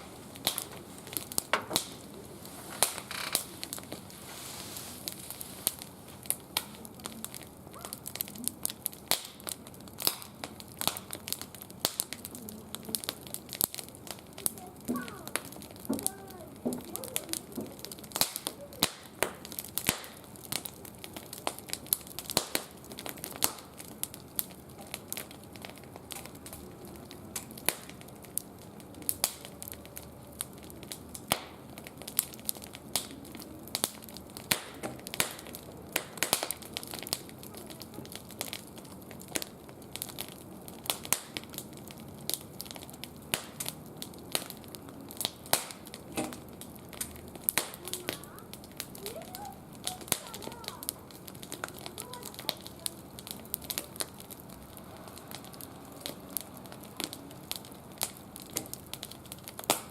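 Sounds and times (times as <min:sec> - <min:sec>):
wood fire crackling: 0:00.0 - 0:59.9
sharp pops: 0:45.3 - 0:48.0.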